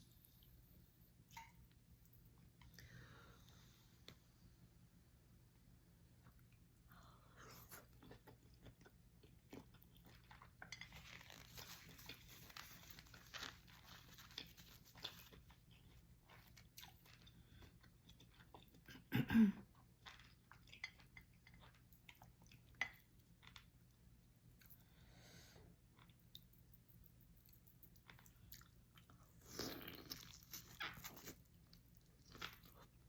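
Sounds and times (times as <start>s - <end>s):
chewing and crunching seafood: 7.7s - 24.8s, 25.8s - 33.0s
rustling and crackling: 10.8s - 15.3s.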